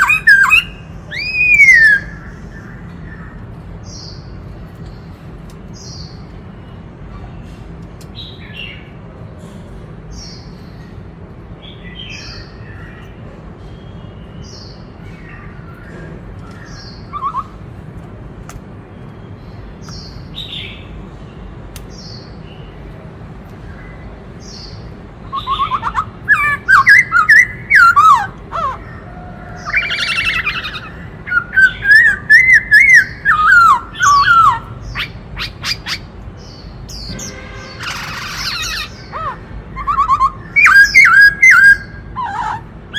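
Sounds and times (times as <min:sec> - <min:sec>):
bird loud warbling: 0:00.0 - 0:03.3, 0:15.3 - 0:17.6, 0:24.4 - 0:42.9.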